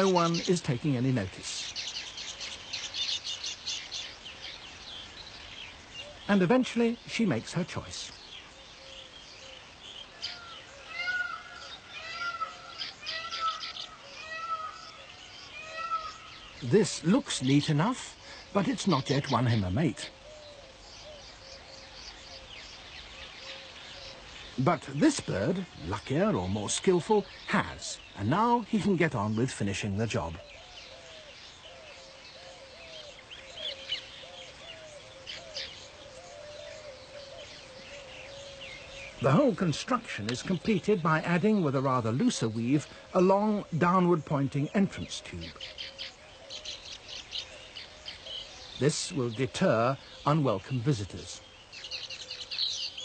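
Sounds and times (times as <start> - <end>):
birds mewing calls: 0.0 - 53.0.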